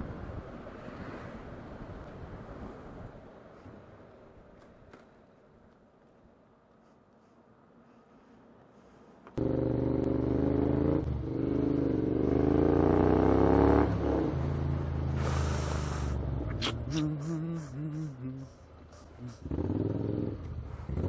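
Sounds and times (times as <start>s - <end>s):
motorcycle engine accelerating: 9.4s - 16.6s, 19.4s - 21.0s
burst of hiss: 15.2s - 16.2s.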